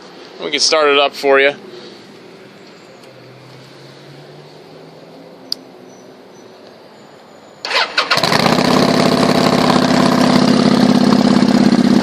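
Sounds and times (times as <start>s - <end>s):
motorcycle engine cranking: 7.7s - 12.0s
motorcycle engine idling: 7.7s - 12.0s.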